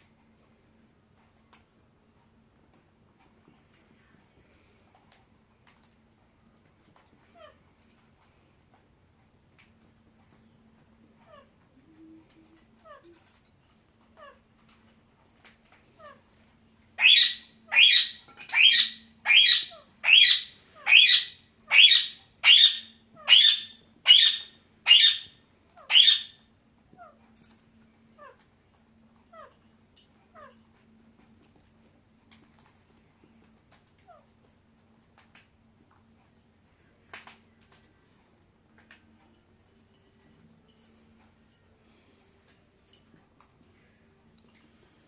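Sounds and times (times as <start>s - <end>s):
parakeet squawking: 17.0s - 26.4s.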